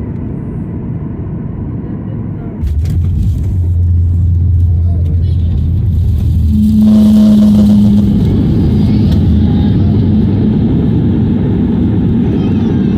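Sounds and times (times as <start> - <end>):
airliner engines rumbling in cabin: 0.0 - 12.9
steady hum: 0.0 - 12.9
rushing air: 2.6 - 12.4.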